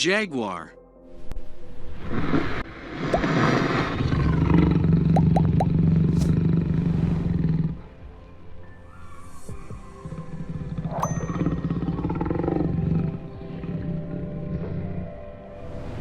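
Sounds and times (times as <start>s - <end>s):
jaguar roaring: 3.6s - 8.0s, 9.3s - 15.6s.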